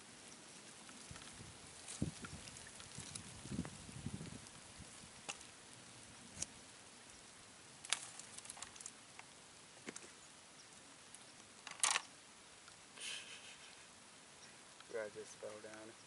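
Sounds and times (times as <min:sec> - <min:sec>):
light clicks and taps: 0:15.6 - 0:15.9.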